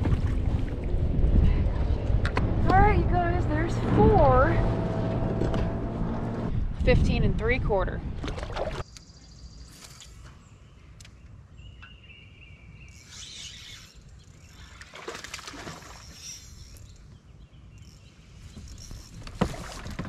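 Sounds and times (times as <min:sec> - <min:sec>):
steady low rumble: 0:00.0 - 0:08.3
birds chirping: 0:08.8 - 0:19.2.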